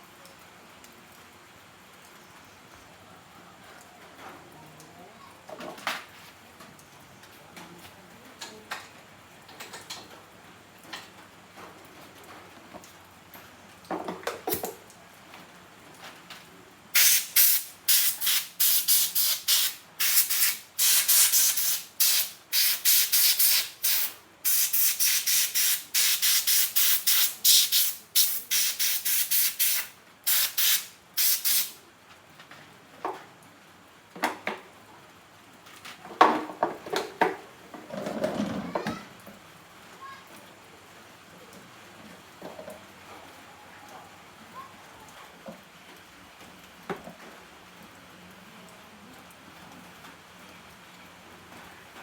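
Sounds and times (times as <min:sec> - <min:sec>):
hissing spray bursts: 0:17.0 - 0:31.8.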